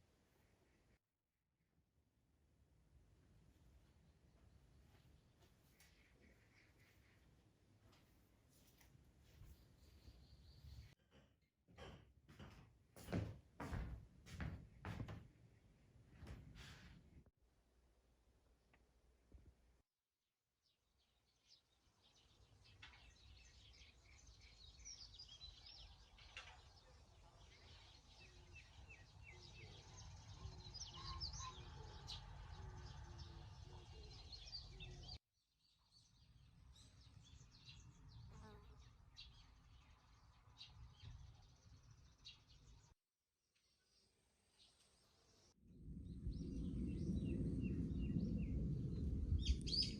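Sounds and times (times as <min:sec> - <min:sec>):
small birds chirping: 0:21.0 - 0:42.9, 0:46.2 - 0:49.9.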